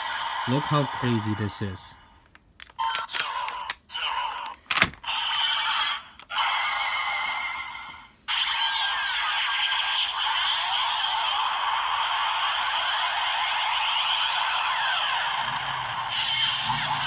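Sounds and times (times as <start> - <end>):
toy device clicking: 2.3 - 5.5.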